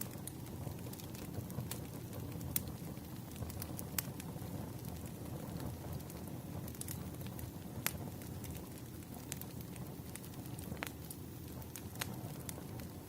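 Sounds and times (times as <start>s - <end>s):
fire low rumble: 0.0s - 13.0s
wood fire crackling and popping: 0.0s - 13.0s.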